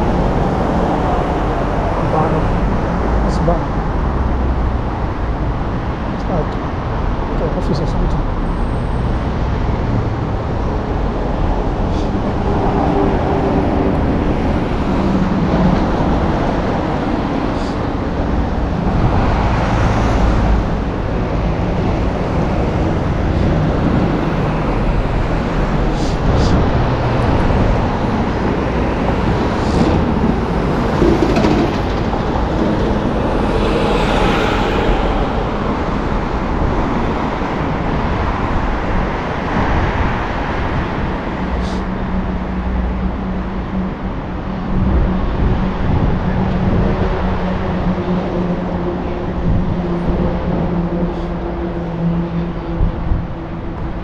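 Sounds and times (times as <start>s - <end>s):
cars passing: 8.6s - 40.7s.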